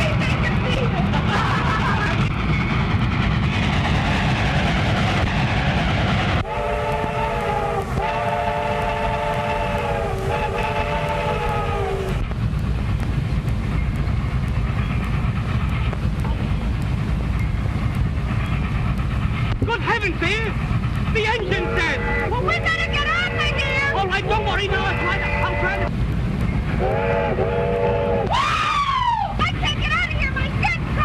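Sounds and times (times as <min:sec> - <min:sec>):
train rumbling: 0:00.0 - 0:31.0
train whistle blasts: 0:06.4 - 0:12.2, 0:21.5 - 0:25.9, 0:26.8 - 0:29.0.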